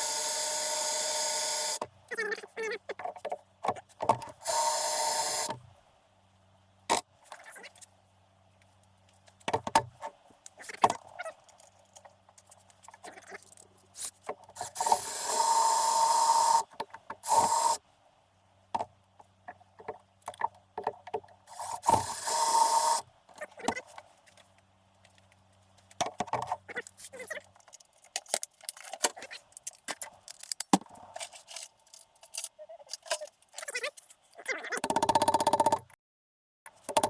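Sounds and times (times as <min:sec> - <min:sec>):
metal tools clicking and clattering: 0:26.8 - 0:34.3.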